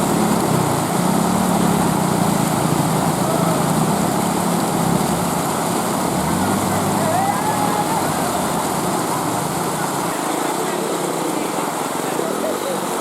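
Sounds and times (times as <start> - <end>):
small motorcycle engine running: 0.0 - 10.2
even rushing noise: 0.0 - 11.1.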